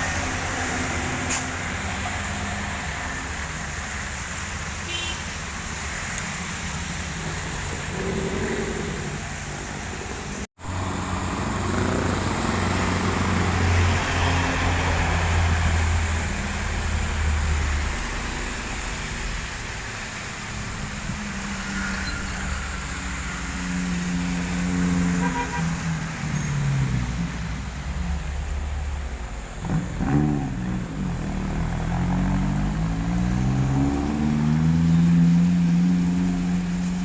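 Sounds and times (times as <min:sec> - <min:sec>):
truck diesel engines passing: 0:00.0 - 0:37.0
tyres hissing on wet road: 0:00.0 - 0:37.0.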